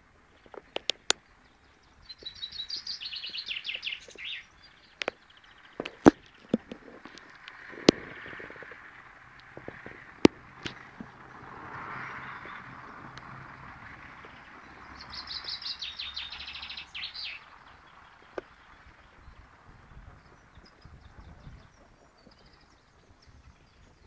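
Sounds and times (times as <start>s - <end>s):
songbird trill: 0.0s - 24.0s
sharp clicks: 0.4s - 1.2s, 5.8s - 11.1s.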